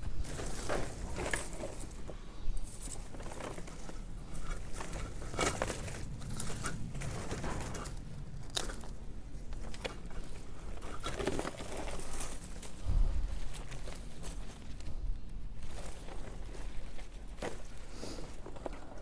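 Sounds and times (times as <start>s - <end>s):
vines rustling and crackling: 0.0s - 19.0s.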